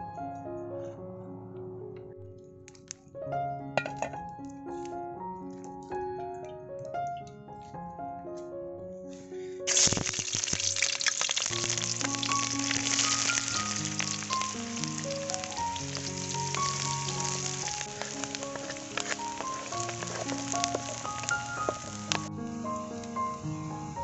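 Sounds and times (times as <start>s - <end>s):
background piano music: 0.0s - 24.0s
onions sizzling in hot oil: 9.7s - 24.0s.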